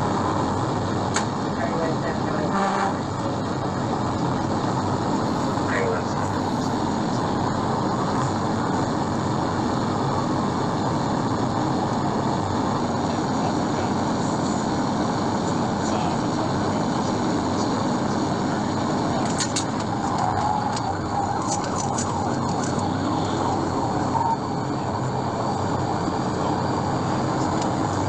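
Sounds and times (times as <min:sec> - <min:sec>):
road and wind noise: 0:00.0 - 0:28.0
sharp clicks: 0:19.2 - 0:20.9.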